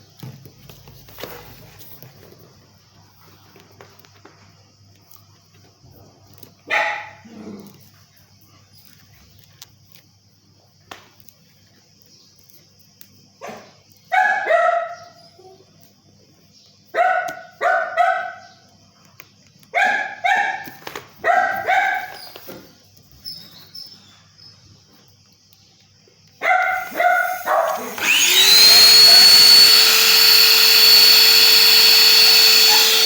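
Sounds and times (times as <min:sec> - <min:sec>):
dog barking: 0:06.7 - 0:07.3, 0:13.4 - 0:15.2, 0:16.9 - 0:18.5, 0:19.7 - 0:22.2, 0:26.4 - 0:27.9.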